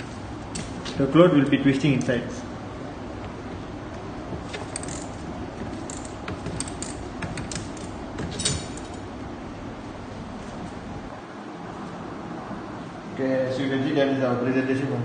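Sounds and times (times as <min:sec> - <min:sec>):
bicycle chain clicking and rattling: 0:04.4 - 0:09.1.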